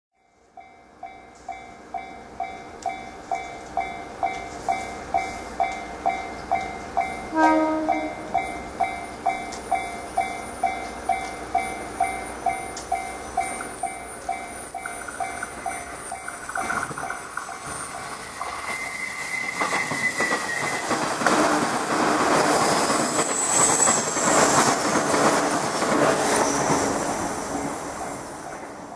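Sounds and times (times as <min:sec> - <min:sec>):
level-crossing bell ringing: 0:00.2 - 0:18.1
train horn blast: 0:07.3 - 0:08.4
train wheels clattering over rail joints: 0:08.8 - 0:27.2.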